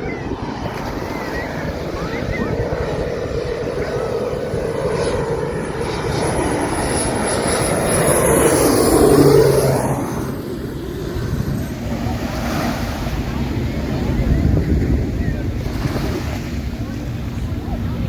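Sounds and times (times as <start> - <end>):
surf washing: 0.0 - 5.5, 10.9 - 18.0
jet airliner passing overhead: 0.0 - 18.0.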